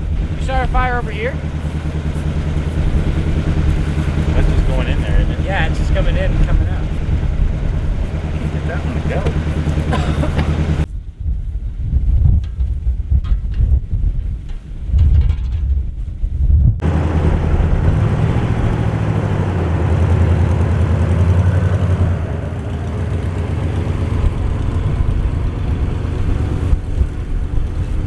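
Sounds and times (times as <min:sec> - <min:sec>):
truck engine running: 0:00.0 - 0:10.9, 0:16.8 - 0:28.0.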